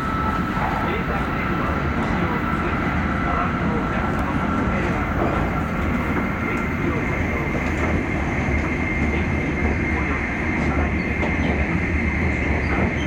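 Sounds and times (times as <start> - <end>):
train cabin rumble: 0.0 - 13.0.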